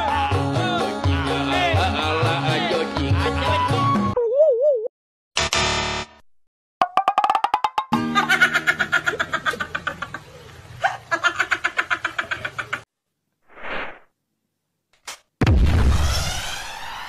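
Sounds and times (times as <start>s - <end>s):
cartoon laughing: 8.0s - 12.9s
loud explosion effect: 15.4s - 17.0s.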